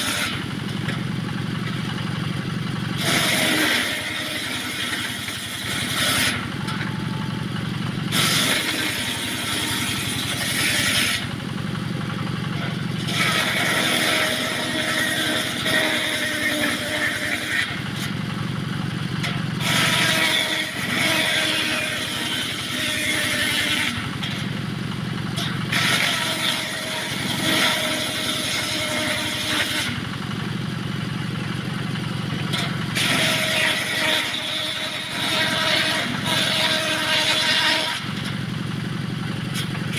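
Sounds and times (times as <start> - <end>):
saw blade cutting wood: 0.0 - 1.0, 3.0 - 7.5, 8.1 - 11.3, 12.5 - 18.2, 19.2 - 24.5, 25.3 - 30.0, 32.4 - 38.4, 39.5 - 39.9
engine humming: 0.0 - 39.9.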